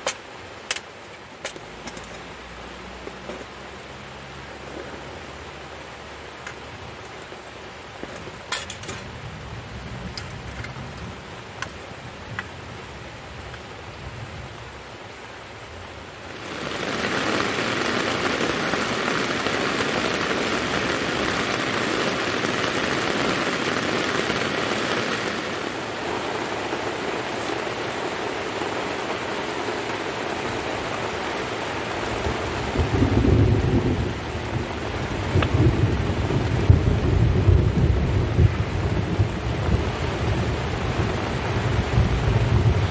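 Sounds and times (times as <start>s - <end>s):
rain on a tent: 0.0s - 42.9s
low thunder rumble: 32.1s - 42.9s.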